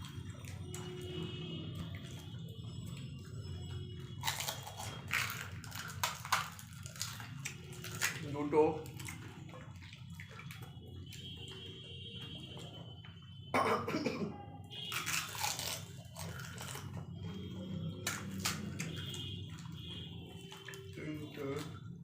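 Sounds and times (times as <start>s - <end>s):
crisp shells crunched and chewed: 4.2s - 9.3s, 14.9s - 17.0s, 17.9s - 19.7s.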